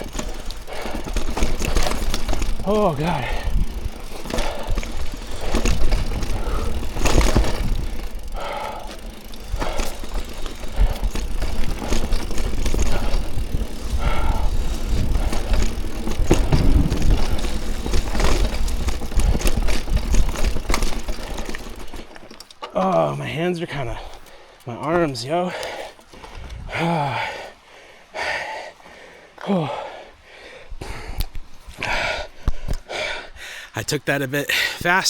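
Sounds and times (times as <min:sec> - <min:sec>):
bike knocks and clatter: 0:00.0 - 0:23.2.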